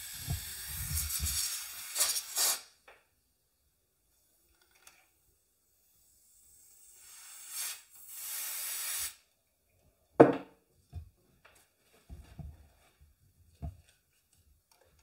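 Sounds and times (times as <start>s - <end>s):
aerosol can spraying: 0.0s - 2.7s, 6.6s - 9.2s.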